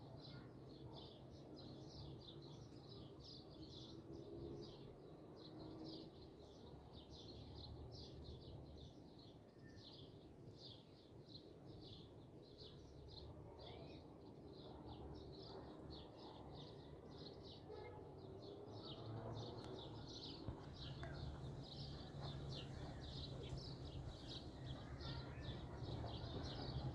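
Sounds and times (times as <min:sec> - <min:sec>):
small birds chirping: 0:18.8 - 0:26.9.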